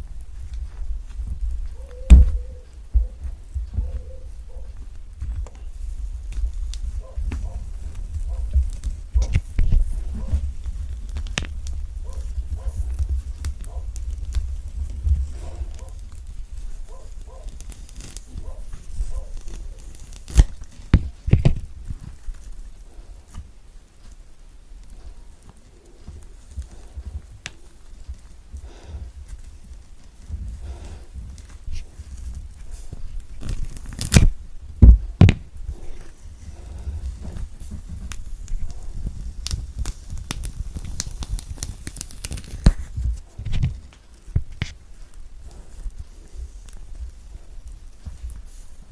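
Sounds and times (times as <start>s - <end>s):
orange peel crackling and snapping: 6.2s - 22.4s, 29.7s - 34.4s, 35.0s - 47.1s
orange peel tearing: 17.3s - 20.8s, 33.4s - 34.4s, 38.0s - 42.9s
peel snapping: 19.4s - 21.6s, 33.4s - 34.4s, 39.4s - 42.8s.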